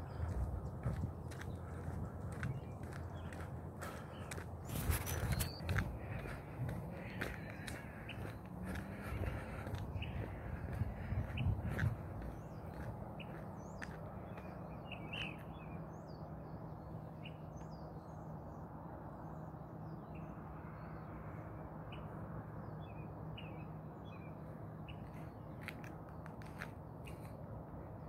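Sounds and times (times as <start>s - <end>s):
small birds chirping: 0.0s - 18.2s
steady low hum: 0.0s - 20.0s.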